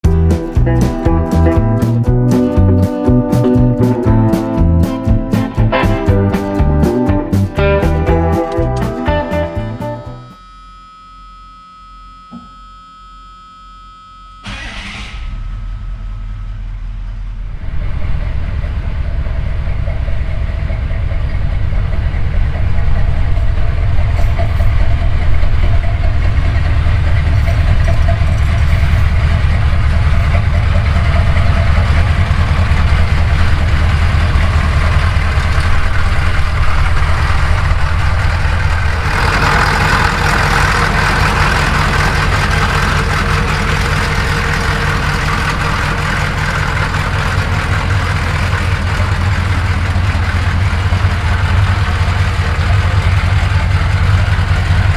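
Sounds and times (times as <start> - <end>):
diesel engine idling: 0.0 - 10.3, 14.5 - 54.9
starter motor cranking: 27.2 - 54.9.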